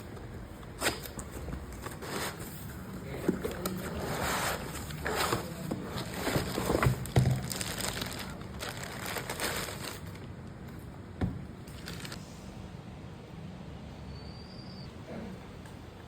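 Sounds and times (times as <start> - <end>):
packaging crinkling and rustling: 0.2 - 10.9, 11.6 - 12.2.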